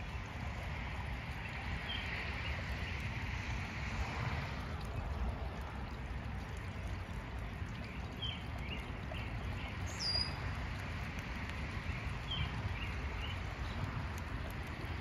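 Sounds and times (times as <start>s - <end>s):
small birds chirping: 1.3s - 3.2s, 7.5s - 15.0s.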